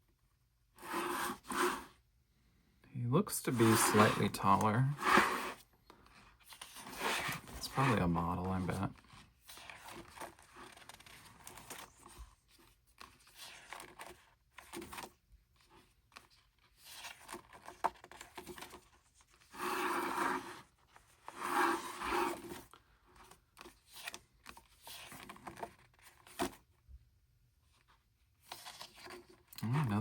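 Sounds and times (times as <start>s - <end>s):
paper swishes: 3.5s - 5.6s
paper pages rustling: 3.5s - 26.6s.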